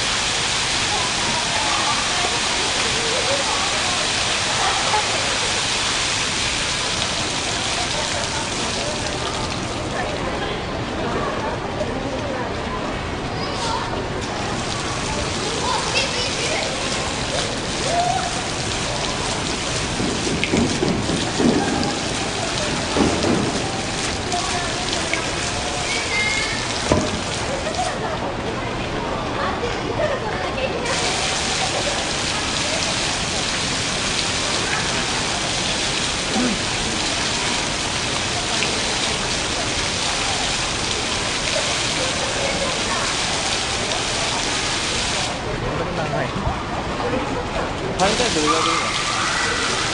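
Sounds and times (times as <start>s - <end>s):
water drops falling and splashing: 14.2s - 28.0s, 30.9s - 45.4s, 47.9s - 49.9s.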